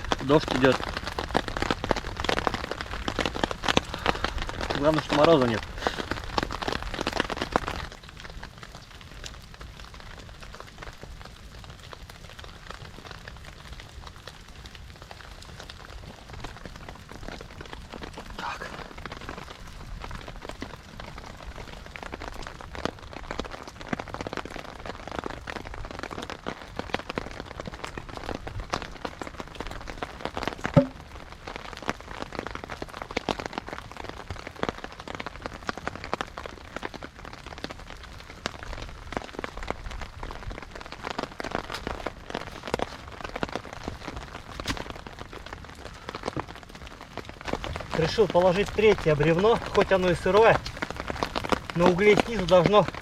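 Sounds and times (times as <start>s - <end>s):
steady rain: 0.0s - 53.0s
loud knock: 30.8s - 31.0s.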